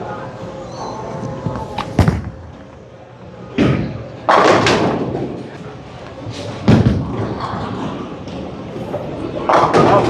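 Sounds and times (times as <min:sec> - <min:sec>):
bowling ball thud: 0:01.5 - 0:02.9
bowling pins crashing: 0:01.6 - 0:02.9
sharp knock: 0:01.8 - 0:02.8.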